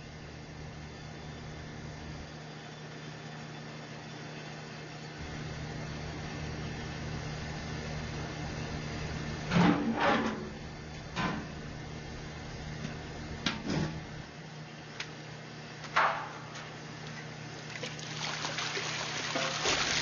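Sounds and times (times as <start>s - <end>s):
low machine hum: 0.0s - 20.0s
sharp knocks and clanks: 15.9s - 16.7s.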